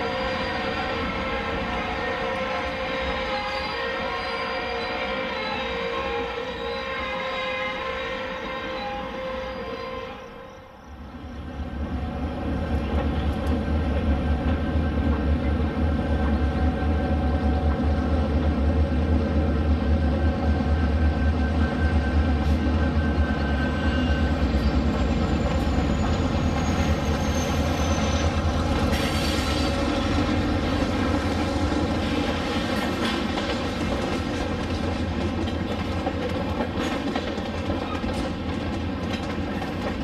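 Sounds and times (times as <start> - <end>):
wheels clacking on rail joints: 24.8 - 40.0.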